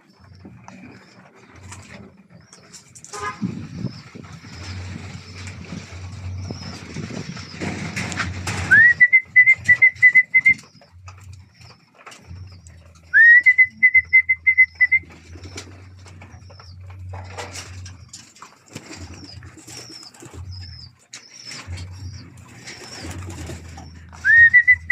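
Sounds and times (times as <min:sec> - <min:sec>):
pigeon wings flapping: 0:13.0 - 0:24.9.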